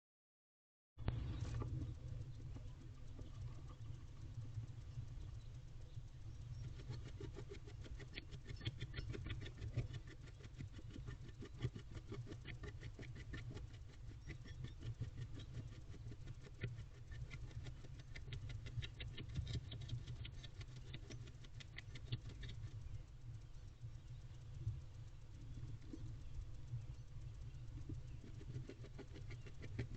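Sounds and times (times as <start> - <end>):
steady low rumble: 1.0 - 29.9
owl scratching and rustling: 6.3 - 23.0, 24.6 - 29.9.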